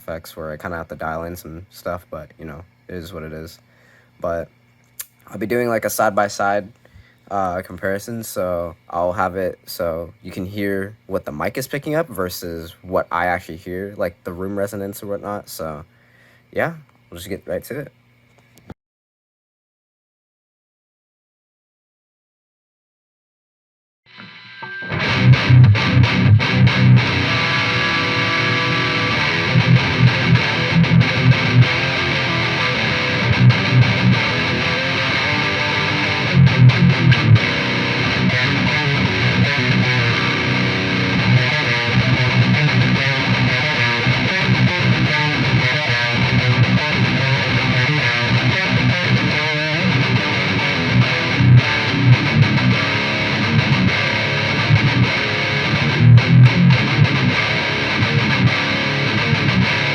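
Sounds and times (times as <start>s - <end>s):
distorted electric guitar riff: 24.1s - 59.9s.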